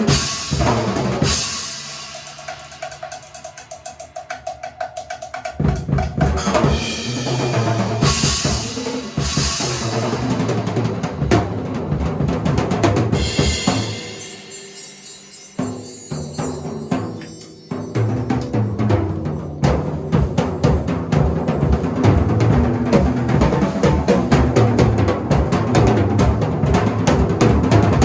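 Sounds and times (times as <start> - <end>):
cymbal crashes: 0.0 - 2.8, 6.4 - 11.0, 13.1 - 18.4
drum fills on toms and snare: 0.0 - 14.7, 15.5 - 28.0
bass drum: 5.6 - 14.0, 19.6 - 28.0.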